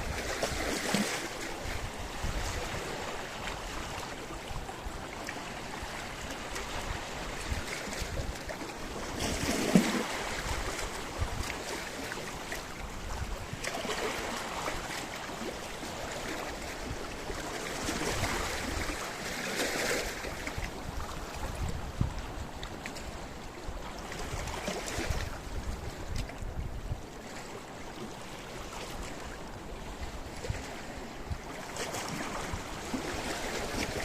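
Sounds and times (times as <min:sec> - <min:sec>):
waves washing against rocks: 0:00.0 - 0:22.0, 0:31.6 - 0:34.0.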